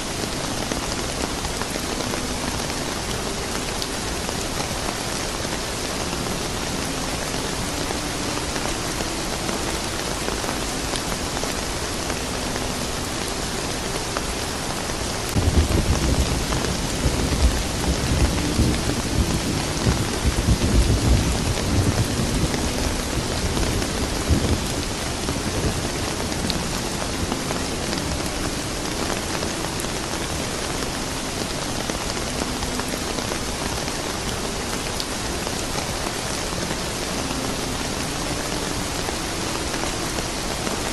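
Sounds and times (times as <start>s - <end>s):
steady rain falling: 0.0s - 40.9s
thunder rumbling: 15.3s - 29.1s.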